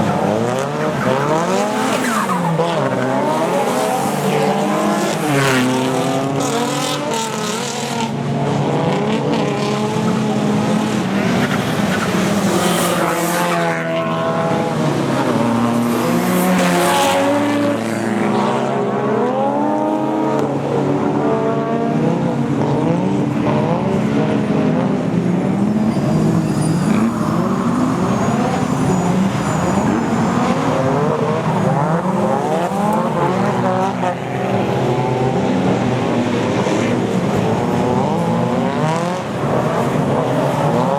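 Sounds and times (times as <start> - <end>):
car engines revving hard: 0.0 - 40.9
tyre squeal: 25.6 - 33.3.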